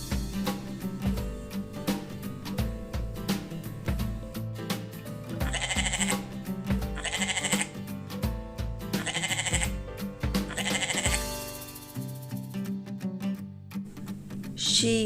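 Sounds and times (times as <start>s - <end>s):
guitar music with beat: 0.0s - 15.0s
goat bleating: 5.4s - 7.8s, 9.0s - 9.8s, 10.5s - 11.3s.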